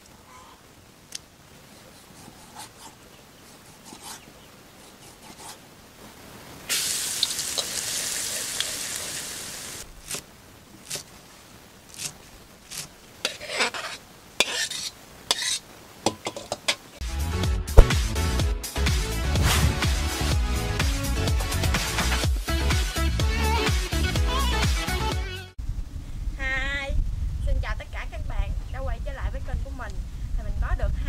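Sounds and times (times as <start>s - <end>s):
garlic sizzling in a wok: 6.7s - 10.2s, 12.8s - 16.8s
utensil scraping metal wok: 7.4s - 9.7s, 12.0s - 16.9s.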